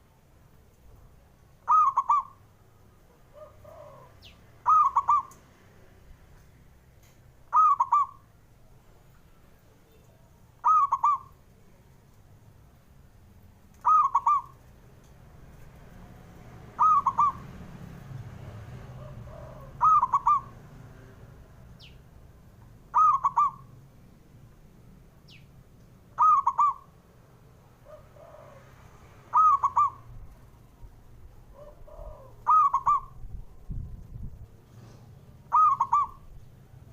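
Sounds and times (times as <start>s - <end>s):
dove cooing: 1.6s - 2.4s, 3.3s - 5.4s, 7.5s - 8.2s, 10.6s - 11.4s, 13.8s - 14.7s, 16.7s - 17.6s, 18.4s - 20.7s, 22.9s - 23.7s, 26.2s - 26.9s, 27.8s - 30.1s, 31.5s - 33.2s, 35.4s - 36.4s.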